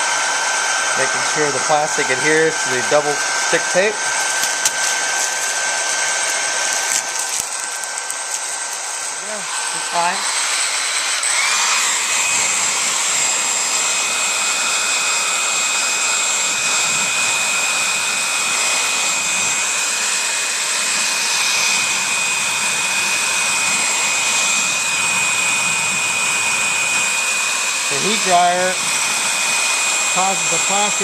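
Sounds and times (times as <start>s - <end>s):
hair dryer blowing: 0.0s - 31.0s.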